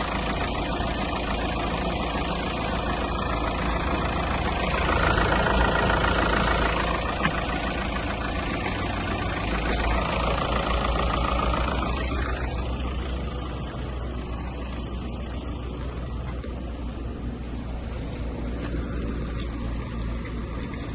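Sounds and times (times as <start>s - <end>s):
diesel engine idling: 0.0s - 20.9s.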